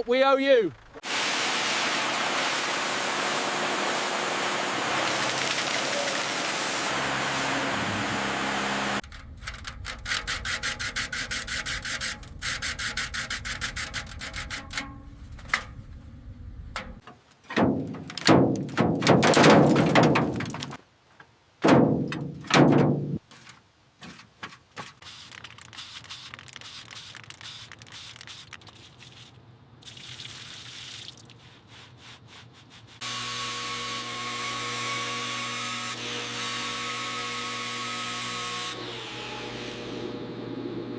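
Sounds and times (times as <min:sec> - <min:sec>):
sandpaper rubbing: 0:09.9 - 0:14.8, 0:24.8 - 0:29.4, 0:31.4 - 0:33.1.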